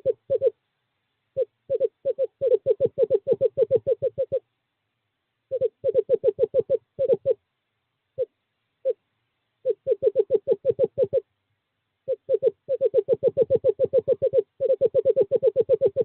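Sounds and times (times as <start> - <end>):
owl trilling hoots: 0.0 - 0.6, 1.4 - 4.5, 5.5 - 7.4, 8.2 - 9.0, 9.6 - 11.3, 12.0 - 16.0.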